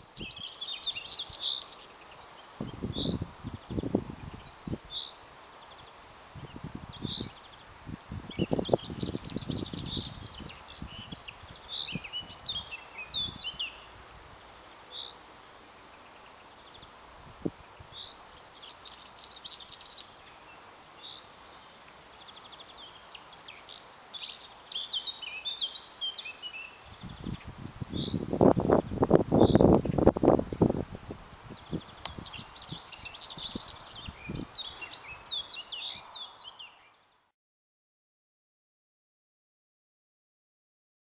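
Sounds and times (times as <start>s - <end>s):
small birds squeaking: 0.0s - 1.9s, 6.5s - 13.8s, 18.0s - 20.0s, 30.9s - 36.3s
short bird chirps: 31.6s - 35.2s.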